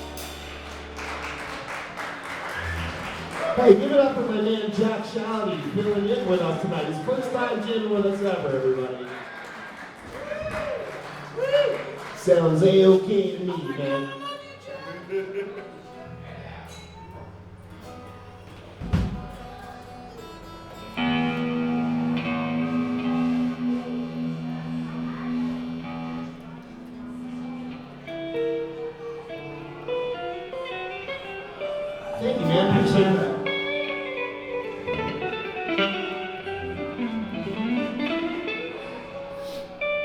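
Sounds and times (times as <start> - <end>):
electric guitar note ringing: 0.0 - 7.6, 16.2 - 40.0.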